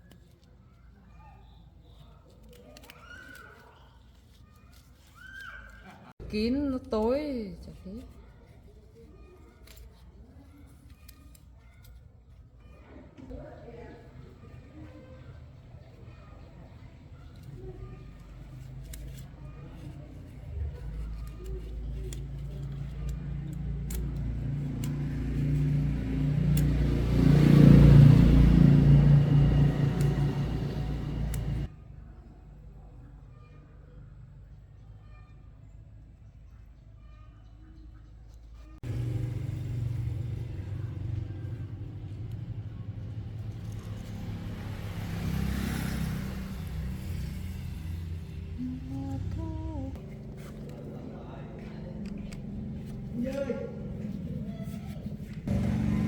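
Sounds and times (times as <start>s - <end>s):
motorcycle engine running: 20.4s - 31.7s, 38.8s - 56.0s.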